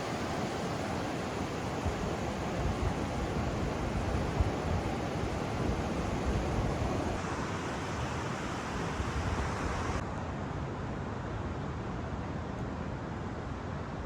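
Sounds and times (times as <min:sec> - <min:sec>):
wind buffeting microphone: 0:00.0 - 0:07.2
surf rushing: 0:00.0 - 0:10.0.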